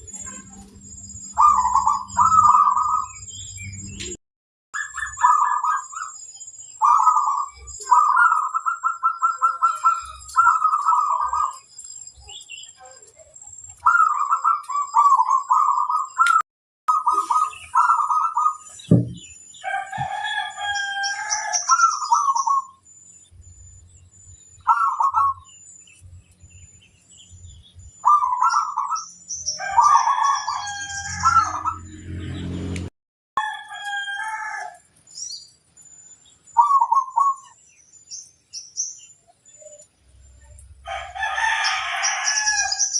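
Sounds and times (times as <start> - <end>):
small birds chirping: 0.0 - 4.2, 4.8 - 32.8, 33.7 - 42.9
dove cooing: 1.4 - 3.2, 4.8 - 6.2, 6.8 - 11.6, 13.8 - 19.0, 20.0 - 22.7, 24.6 - 25.5, 28.0 - 29.0, 29.6 - 31.9, 36.6 - 37.6
roosters crowing: 1.4 - 3.6, 19.5 - 22.7, 28.0 - 32.8, 33.4 - 35.0, 40.8 - 42.9
low thump: 18.9 - 19.3.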